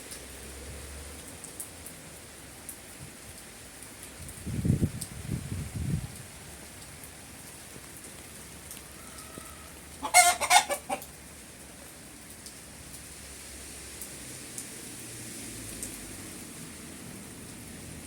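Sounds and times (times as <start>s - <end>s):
steady rain falling: 0.0s - 18.0s
chicken calling: 8.8s - 11.1s.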